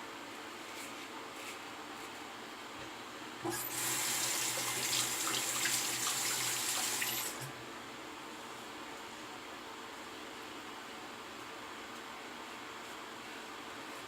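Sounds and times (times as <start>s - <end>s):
sink tap running: 3.4s - 7.5s.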